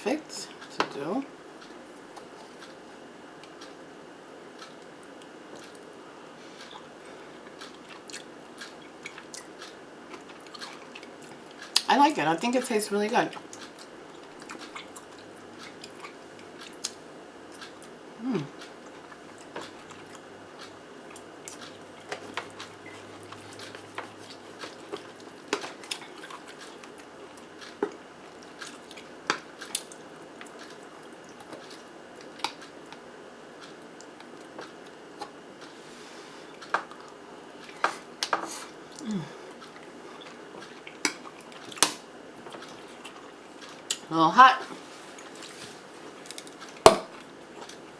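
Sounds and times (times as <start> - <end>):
person chewing: 4.5 - 11.9, 13.3 - 44.1, 45.0 - 47.9.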